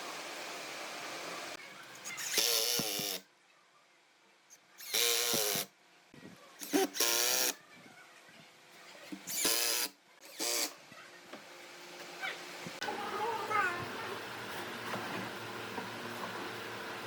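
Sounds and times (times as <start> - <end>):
power tool short bursts: 2.1 - 3.2, 9.3 - 10.8.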